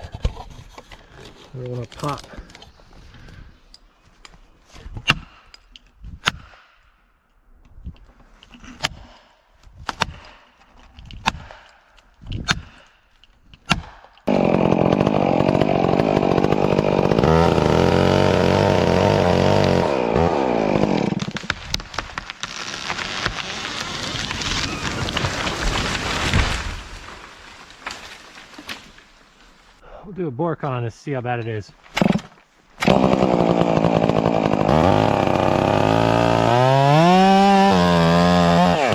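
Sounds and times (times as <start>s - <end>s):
chainsaw cutting: 13.7s - 28.7s, 31.9s - 38.9s.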